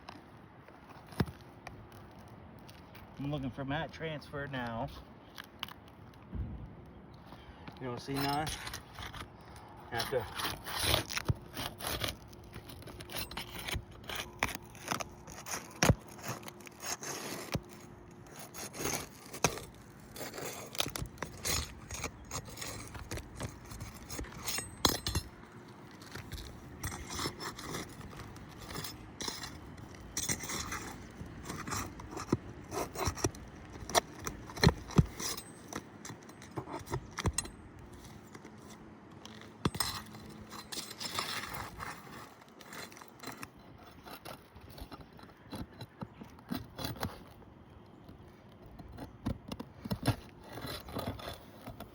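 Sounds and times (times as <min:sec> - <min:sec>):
roof shingles scraping: 0:07.4 - 0:47.4.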